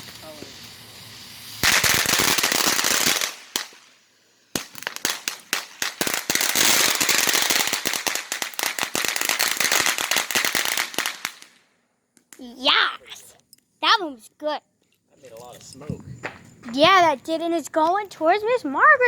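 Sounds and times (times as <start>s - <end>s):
firework rushing hiss: 0.0s - 11.6s
firework crackling pops: 0.0s - 13.3s.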